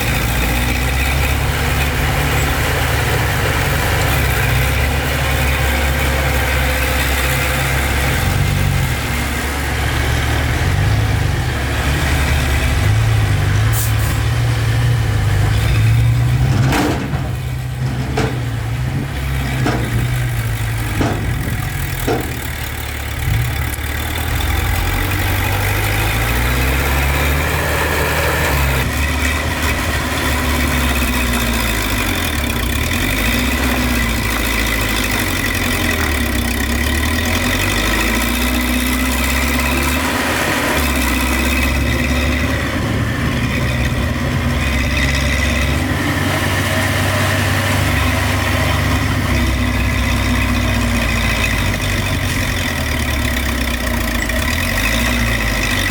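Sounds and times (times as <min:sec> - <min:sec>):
heavy machinery engines: 0:00.0 - 0:55.9
sharp knocks: 0:16.4 - 0:22.7.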